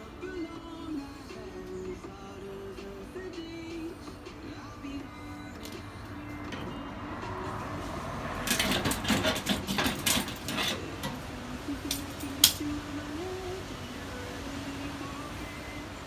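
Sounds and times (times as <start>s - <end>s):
metallic clattering: 2.8s - 13.4s.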